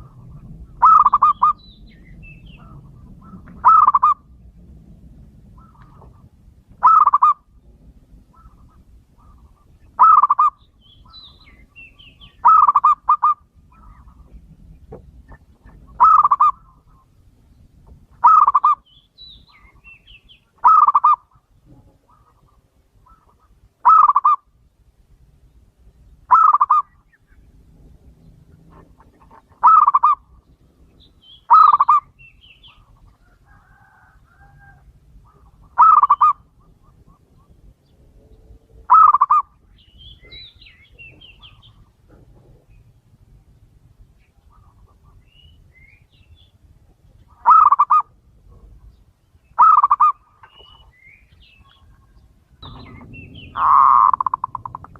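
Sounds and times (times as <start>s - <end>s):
dove cooing: 0.0s - 4.4s, 5.5s - 7.5s, 8.3s - 10.6s, 11.5s - 14.4s, 15.2s - 17.1s, 18.2s - 18.8s, 20.6s - 24.5s, 26.3s - 27.0s, 28.6s - 30.4s, 31.5s - 32.2s, 32.8s - 37.7s, 38.5s - 39.6s, 47.3s - 48.8s, 49.6s - 50.8s, 51.6s - 54.9s
small birds chirping: 0.0s - 4.6s, 5.4s - 54.9s.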